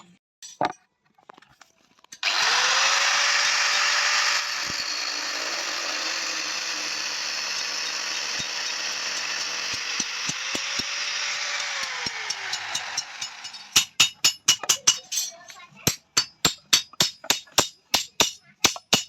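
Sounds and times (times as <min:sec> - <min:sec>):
electric power tool motor running: 0:02.2 - 0:13.8.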